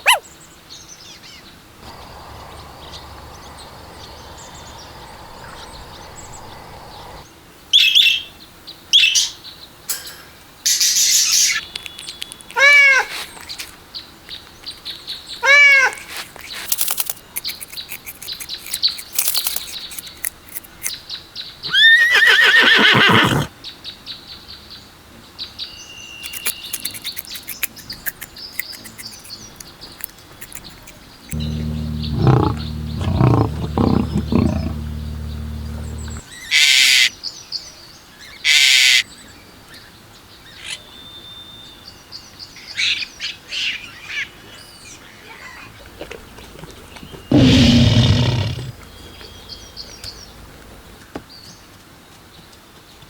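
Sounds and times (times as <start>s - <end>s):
small birds chirping: 0.0s - 7.2s, 10.7s - 13.7s, 14.3s - 21.5s, 26.0s - 36.3s, 46.2s - 51.7s
loud animal calls: 1.8s - 7.2s, 21.7s - 23.5s, 30.4s - 36.2s, 47.3s - 49.9s
low rough animal call: 1.8s - 7.2s, 31.3s - 36.2s, 47.3s - 50.5s.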